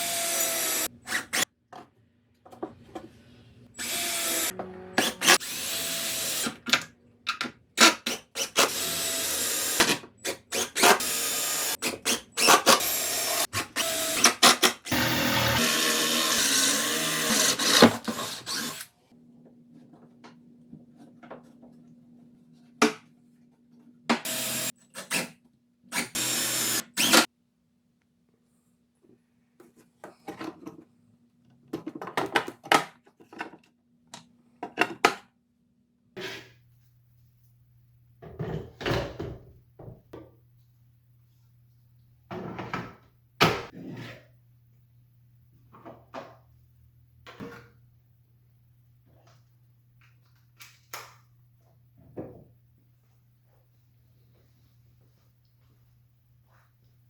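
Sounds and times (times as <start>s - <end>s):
power drill running: 0.0s - 0.9s, 3.8s - 6.6s, 8.6s - 11.8s, 12.4s - 18.8s, 24.3s - 24.7s, 26.1s - 27.3s.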